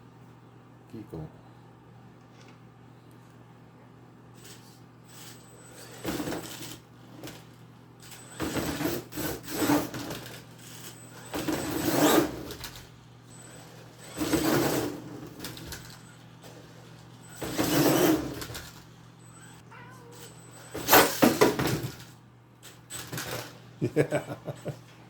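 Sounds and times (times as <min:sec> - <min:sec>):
rc truck motor whirring: 0:04.4 - 0:19.6.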